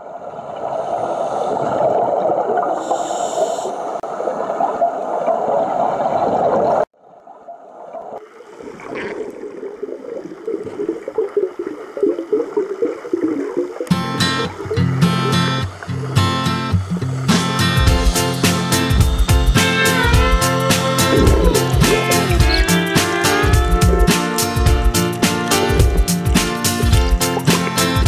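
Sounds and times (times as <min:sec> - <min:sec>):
rushing gurgling water: 0:00.0 - 0:28.0.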